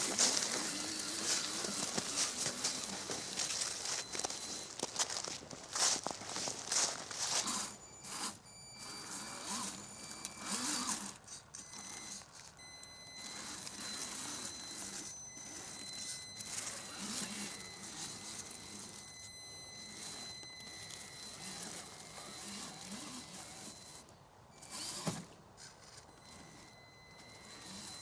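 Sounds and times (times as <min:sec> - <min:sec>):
electric motor whine: 0:00.0 - 0:05.0, 0:05.6 - 0:28.0
rustling: 0:00.0 - 0:09.7.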